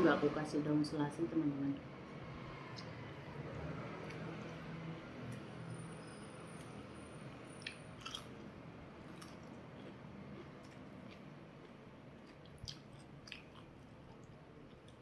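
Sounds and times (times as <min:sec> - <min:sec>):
person chewing soft food: 0:07.6 - 0:15.0.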